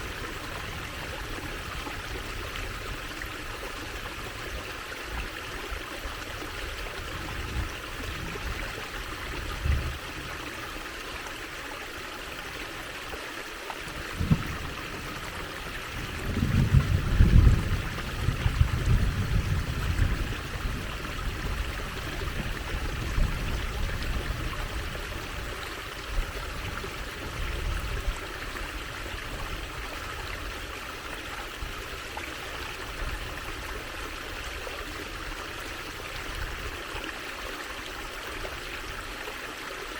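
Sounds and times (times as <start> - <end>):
stream running over stones: 0.0 - 39.9
low knocks: 14.1 - 15.0.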